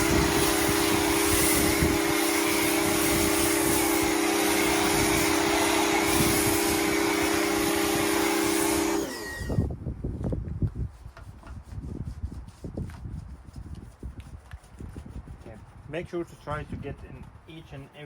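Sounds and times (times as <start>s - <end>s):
motor spinning down: 0.0s - 9.6s
pressure washer motor hum: 0.0s - 9.6s
water jet hissing: 0.0s - 9.6s.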